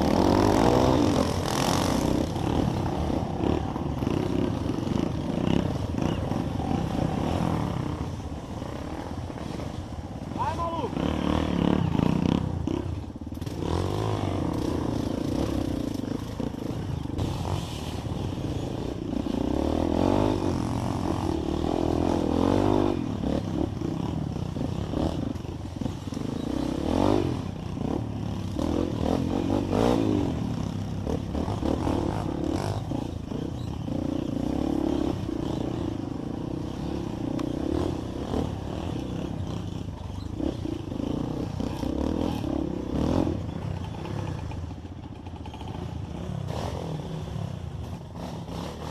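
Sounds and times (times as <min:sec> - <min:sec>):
motorcycle engine revving: 0:00.0 - 0:48.9
clatter: 0:43.7 - 0:47.2.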